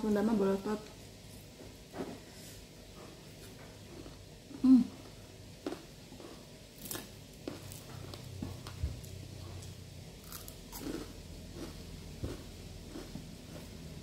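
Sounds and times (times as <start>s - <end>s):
person chewing food: 2.9s - 14.0s
food crunching: 3.9s - 14.0s.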